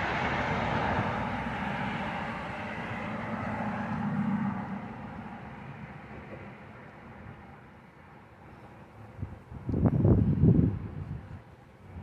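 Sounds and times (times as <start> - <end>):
strong wind blowing: 9.0 - 12.0.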